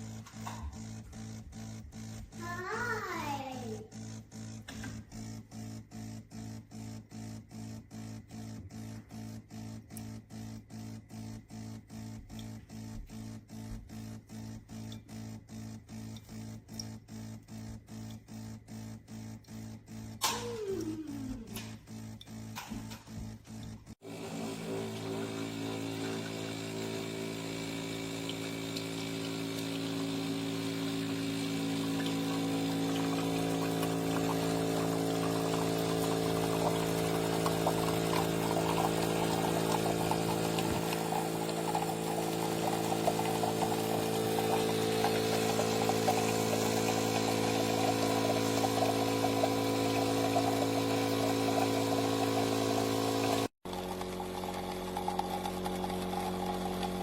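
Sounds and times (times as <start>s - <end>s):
espresso machine pump humming: 0.0s - 57.0s
crackling liquid: 25.2s - 57.0s.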